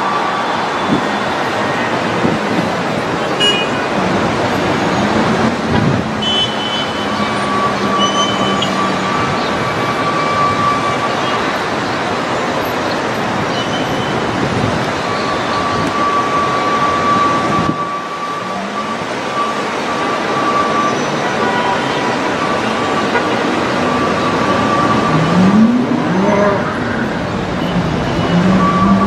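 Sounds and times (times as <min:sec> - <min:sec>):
road traffic noise: 0:00.0 - 0:29.0
vehicle engine rising in pitch: 0:23.8 - 0:29.0.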